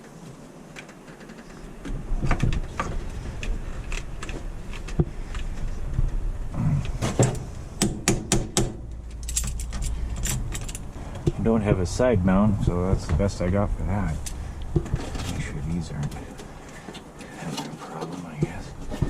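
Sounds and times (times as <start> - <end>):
low rumble: 8.8 - 16.6
tools clicking and clattering: 9.1 - 11.4.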